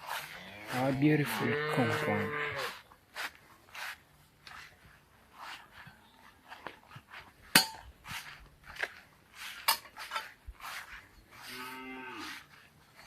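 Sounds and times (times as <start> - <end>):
footsteps on ground: 0.0 - 13.0
cow mooing: 0.4 - 2.7, 11.4 - 12.4.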